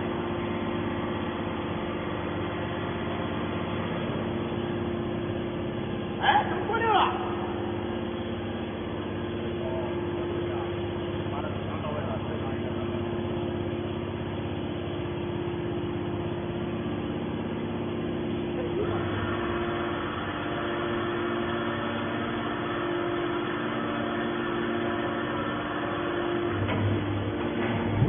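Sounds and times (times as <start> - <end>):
hydraulic baler motor humming: 0.0 - 28.0
noisier machine layer: 0.0 - 28.0.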